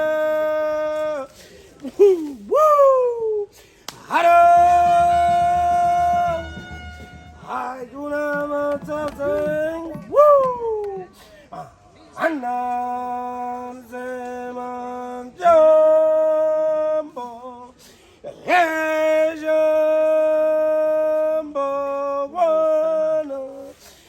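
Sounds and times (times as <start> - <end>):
person singing long notes: 4.1 - 11.0.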